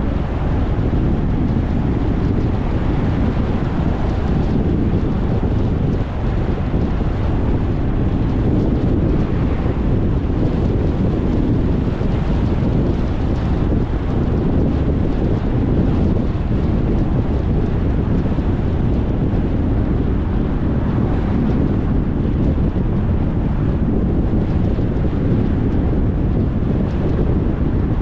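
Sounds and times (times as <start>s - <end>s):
wind blowing across microphone: 0.0s - 28.0s.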